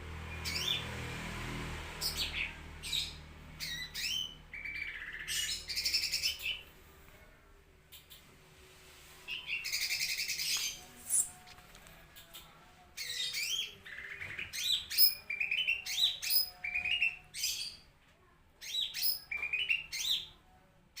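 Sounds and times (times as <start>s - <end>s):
bird singing trills and whistles: 2.0s - 6.6s, 13.0s - 17.8s, 18.6s - 20.3s.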